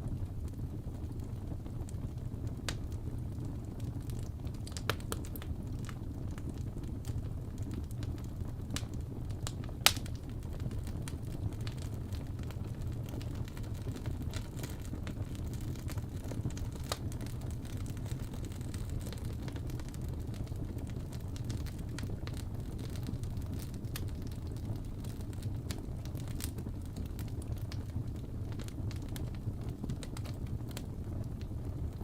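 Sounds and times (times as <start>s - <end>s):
fire crackling and popping: 0.0s - 32.0s
wood fire rumbling: 0.0s - 32.0s.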